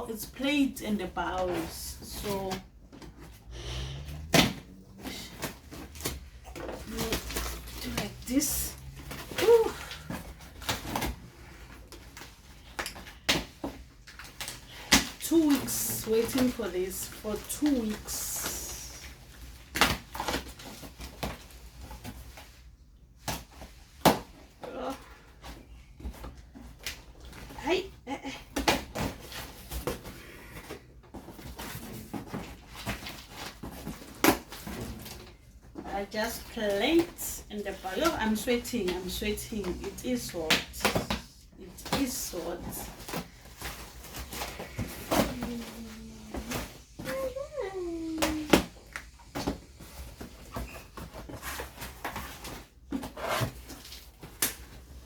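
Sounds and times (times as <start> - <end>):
cardboard packaging rustling: 0.9 - 22.8, 28.6 - 55.0
cardboard box rustling and scraping: 41.8 - 47.4, 48.1 - 55.0.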